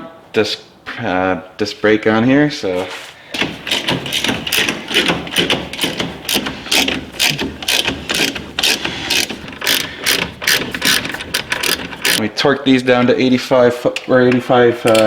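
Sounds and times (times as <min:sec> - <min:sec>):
ratchet wrench clicking: 0:03.4 - 0:12.2.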